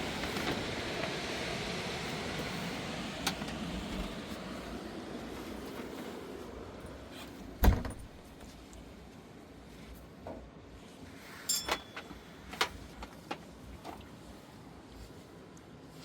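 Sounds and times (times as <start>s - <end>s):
heavy thump: 7.6s - 8.2s.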